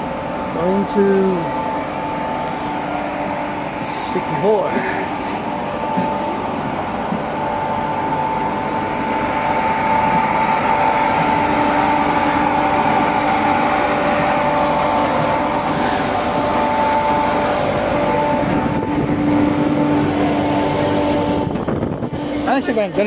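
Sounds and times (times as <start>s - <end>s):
lower hum: 0.0s - 23.0s
ship machinery drone: 0.0s - 23.0s
steady whining tones: 0.0s - 23.0s.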